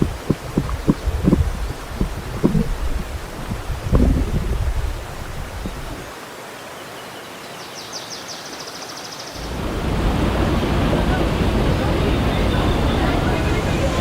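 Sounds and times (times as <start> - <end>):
low thumps: 0.0 - 6.1
water rushing: 0.0 - 14.0.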